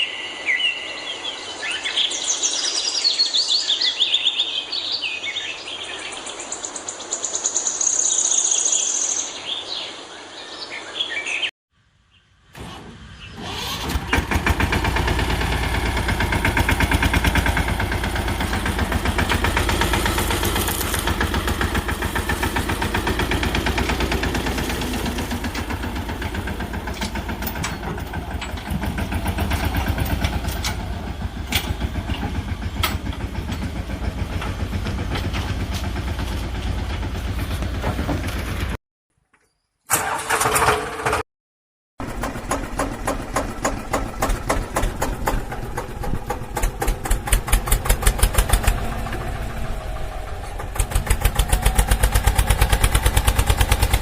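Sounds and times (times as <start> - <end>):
diesel engine clattering: 12.6 - 38.8, 42.0 - 54.0.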